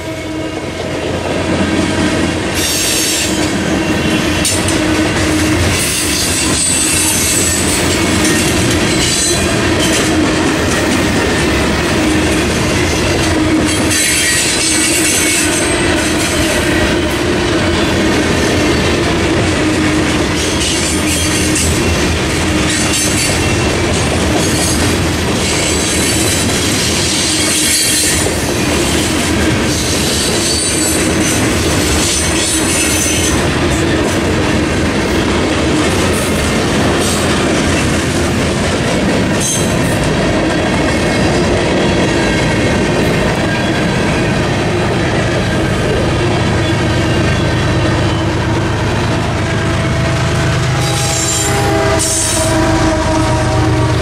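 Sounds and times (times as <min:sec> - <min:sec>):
train wheels clacking over rail joints: 0:00.0 - 0:54.0
high-pitched wheel squeal: 0:05.8 - 0:10.0, 0:13.7 - 0:15.6, 0:50.8 - 0:54.0.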